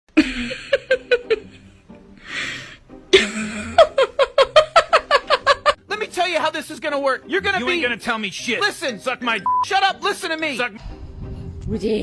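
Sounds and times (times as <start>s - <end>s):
person laughing: 0.2s - 1.8s, 3.1s - 5.8s.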